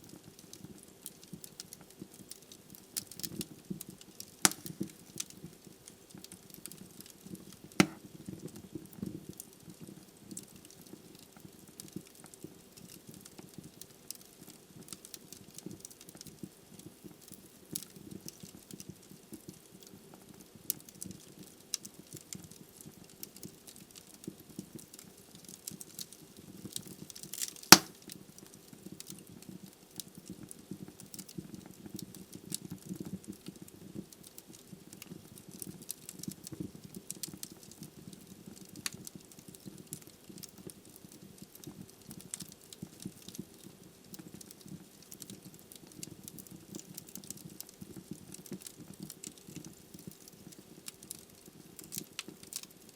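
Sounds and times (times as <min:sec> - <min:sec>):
logs burning and crackling: 0:00.1 - 0:52.9
loud fire pop: 0:04.5 - 0:04.8, 0:07.8 - 0:08.0, 0:27.7 - 0:28.0.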